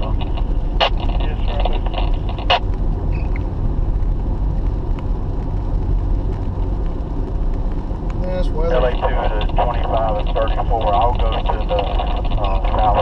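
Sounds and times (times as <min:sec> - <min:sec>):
car road rumble inside cabin: 0:00.0 - 0:13.0.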